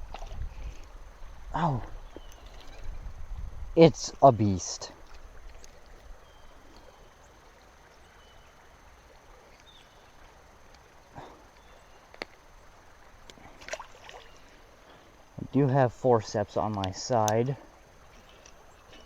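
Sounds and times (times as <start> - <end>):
flowing water hiss: 0.0 - 19.0.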